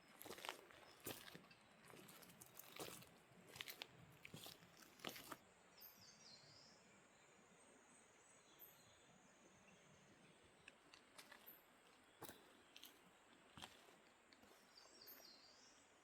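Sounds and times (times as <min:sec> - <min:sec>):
soft crunching clicks: 0:10.6 - 0:13.0.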